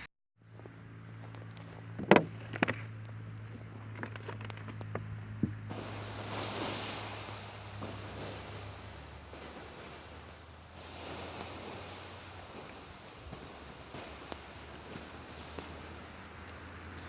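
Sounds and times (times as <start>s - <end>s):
fire knocks and crackles: 3.8s - 17.0s
water hissing on hot embers: 5.7s - 17.0s.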